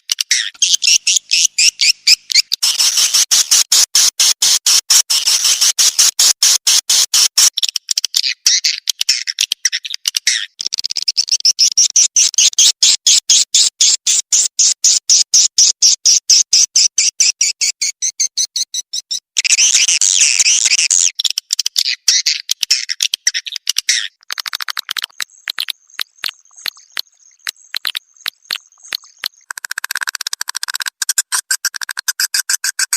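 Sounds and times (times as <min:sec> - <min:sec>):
swiftlet chirps: 0:02.6 - 0:07.5.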